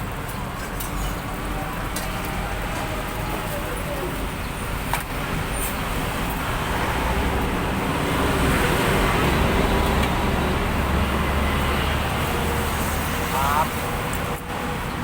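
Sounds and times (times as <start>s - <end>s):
vehicle passing by: 5.4s - 14.9s.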